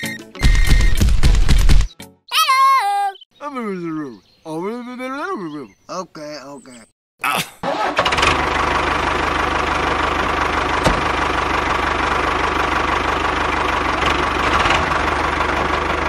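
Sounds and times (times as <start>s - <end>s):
diesel tractor engine idling: 7.7s - 16.0s.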